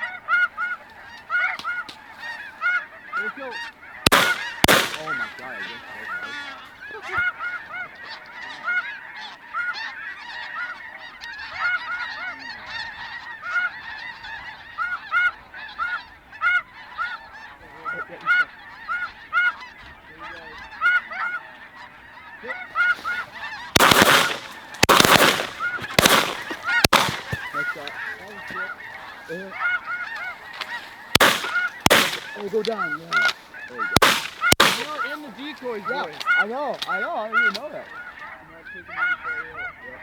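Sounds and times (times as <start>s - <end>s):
geese honking: 0.0s - 40.0s
loud bangs: 4.1s - 5.6s, 22.9s - 28.7s, 30.5s - 36.3s.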